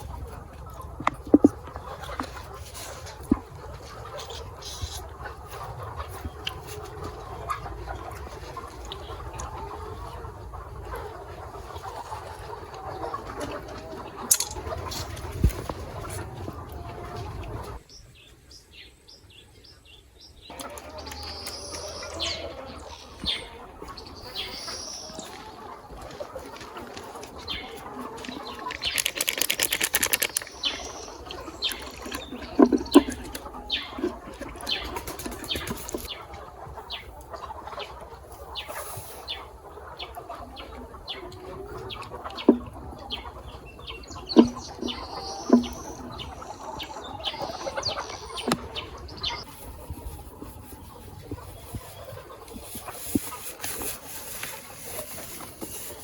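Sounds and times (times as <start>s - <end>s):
chickens clucking: 0.0s - 56.0s
wings flapping rapidly: 28.7s - 30.8s
clicks: 28.7s - 31.0s.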